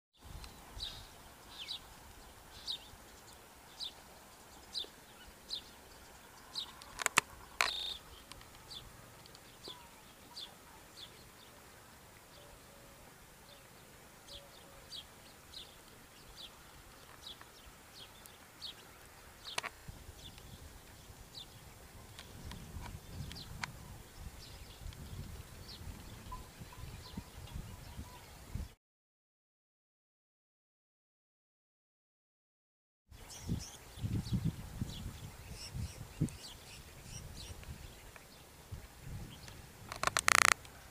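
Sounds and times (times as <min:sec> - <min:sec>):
small bird chirping: 0:02.5 - 0:11.6, 0:39.2 - 0:40.6
sharp clicks: 0:06.8 - 0:08.6, 0:39.9 - 0:40.7.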